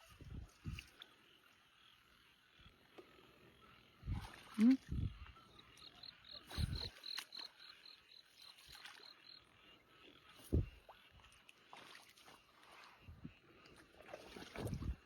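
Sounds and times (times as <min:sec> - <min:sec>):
dull low thuds: 0:10.5 - 0:10.8.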